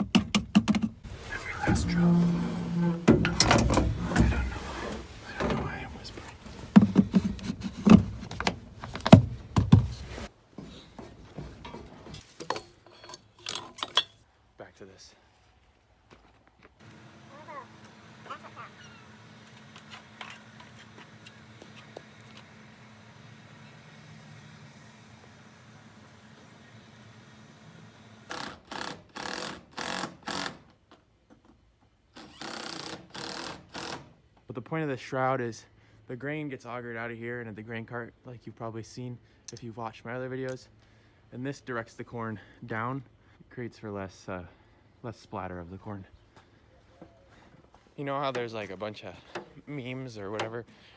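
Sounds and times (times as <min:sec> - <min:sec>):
sharp knocks and clunks: 0:00.0 - 0:12.7
handling noises: 0:00.0 - 0:14.2.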